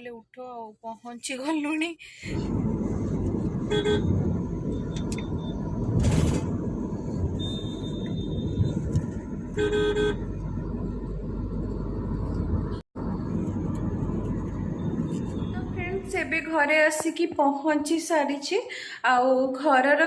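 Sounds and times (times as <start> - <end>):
car road and engine rumble: 1.2 - 17.4
vehicle horn honking: 3.7 - 4.2, 9.5 - 10.2.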